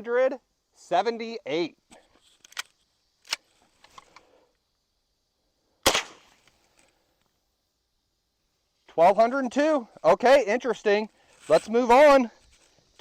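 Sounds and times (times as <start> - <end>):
rifle shot: 5.8 - 6.4.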